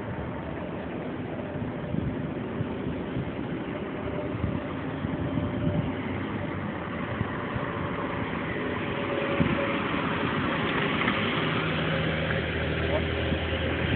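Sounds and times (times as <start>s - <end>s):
car engine driving up: 5.7s - 13.9s.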